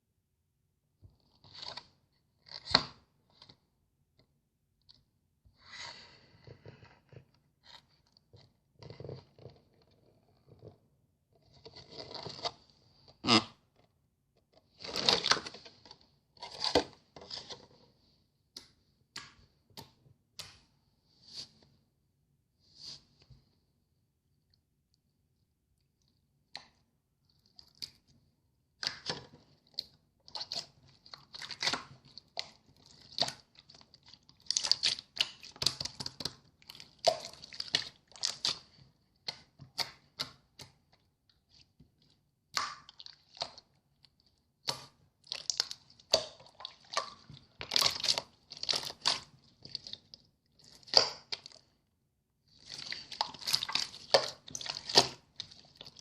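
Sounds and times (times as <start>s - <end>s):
slime squished by hand: 29.7s - 40.8s, 44.6s - 51.7s, 52.6s - 56.0s.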